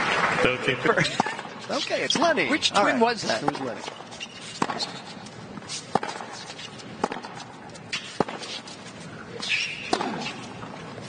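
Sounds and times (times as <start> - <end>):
tennis ball hitting court: 3.2 - 8.8, 9.4 - 10.8.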